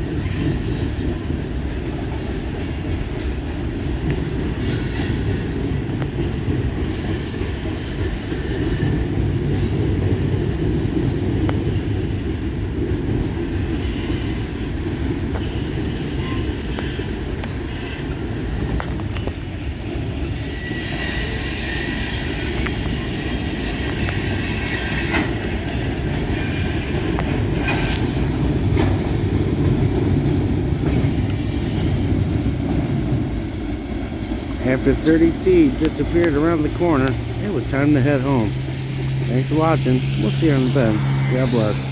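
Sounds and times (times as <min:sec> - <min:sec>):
train wheels rumbling on rail: 0:00.0 - 0:41.9
high wheel squeal: 0:15.4 - 0:18.2, 0:20.2 - 0:29.4.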